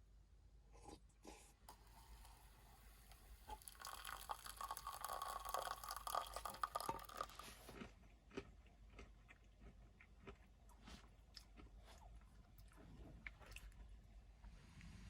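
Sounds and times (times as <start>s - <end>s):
crunchy eating noise: 3.5s - 14.2s
soft chewing clicks: 7.4s - 14.2s.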